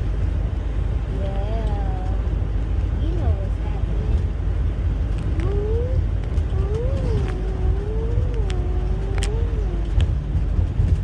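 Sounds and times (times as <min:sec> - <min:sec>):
steady low rumble: 0:00.0 - 0:11.0
low wavering hummed tone: 0:05.1 - 0:10.2.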